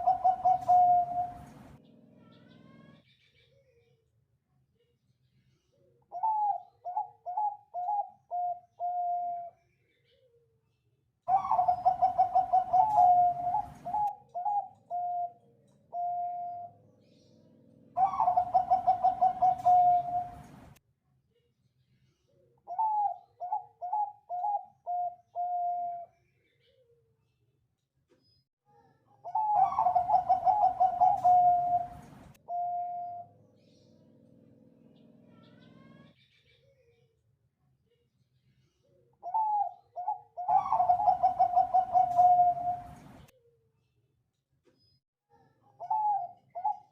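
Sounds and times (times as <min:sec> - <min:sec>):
dove cooing: 0:00.0 - 0:02.7, 0:06.1 - 0:09.5, 0:11.3 - 0:16.8, 0:17.9 - 0:20.7, 0:22.7 - 0:26.1, 0:29.2 - 0:33.4, 0:39.2 - 0:43.2, 0:45.8 - 0:46.9
low background noise: 0:00.0 - 0:27.9, 0:28.9 - 0:44.8.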